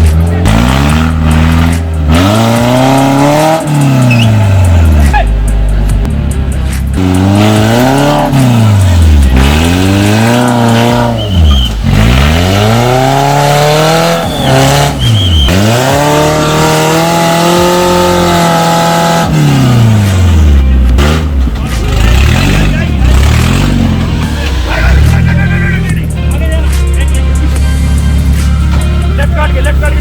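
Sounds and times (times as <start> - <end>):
off-road engine revving hard: 0.0 - 30.0.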